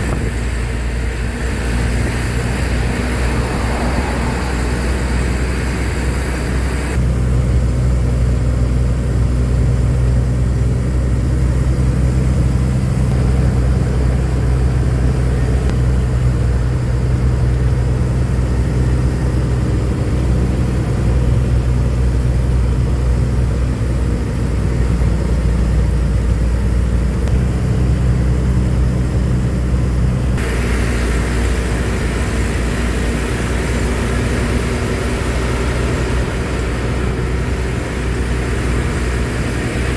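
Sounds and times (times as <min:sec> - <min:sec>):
hiss: 0:00.0 - 0:07.0, 0:30.4 - 0:39.9
truck engine running: 0:00.0 - 0:39.9.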